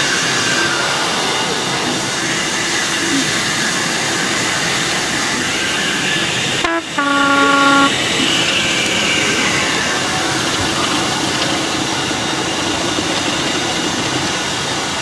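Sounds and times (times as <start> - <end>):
train running noise: 0.0 - 15.0
train horn: 6.6 - 8.0.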